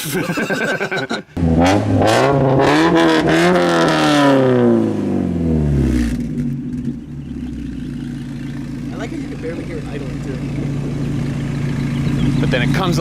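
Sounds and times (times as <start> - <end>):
car engine revving and idling: 1.4 - 13.0
exhaust pops: 5.5 - 13.0.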